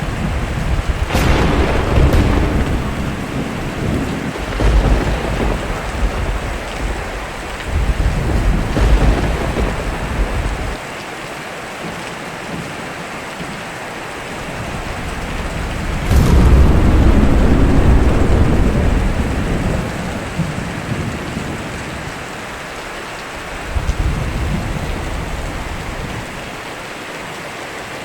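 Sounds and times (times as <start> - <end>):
steady rain: 0.0 - 28.0
low rolling thunder: 0.7 - 10.8, 14.2 - 26.6
sharp thunderclap: 0.8 - 10.8, 14.3 - 26.6.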